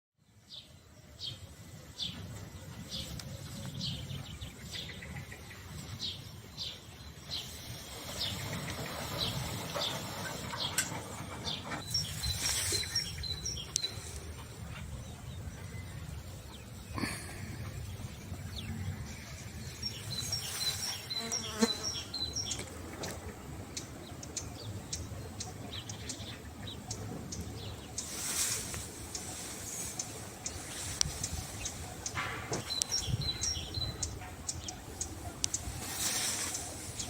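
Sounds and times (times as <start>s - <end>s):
bird twittering: 29.0s - 37.0s.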